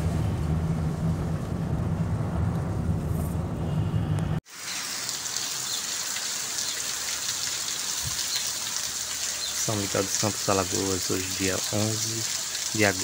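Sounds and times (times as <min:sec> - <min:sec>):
car engine and road rumble: 0:00.0 - 0:04.4
rain falling on wet street: 0:04.5 - 0:13.0.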